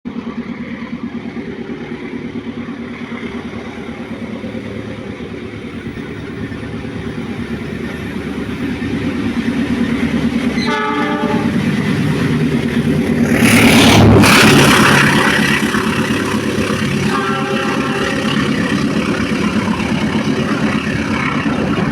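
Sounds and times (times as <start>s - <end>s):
locomotive engine running: 0.1s - 21.9s
train passing close: 0.1s - 21.9s
train horn blast: 10.6s - 11.6s, 16.9s - 18.7s.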